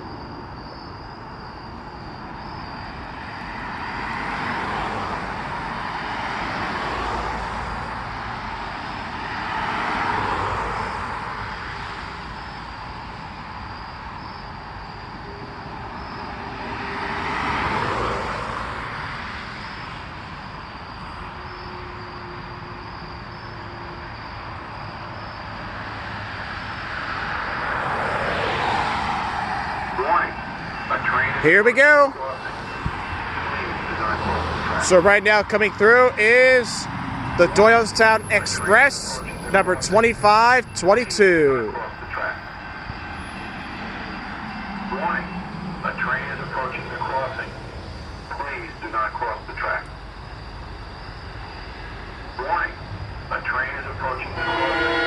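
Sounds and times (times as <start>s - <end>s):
vehicles passing: 0.0s - 55.0s
high insect buzz: 0.6s - 29.8s.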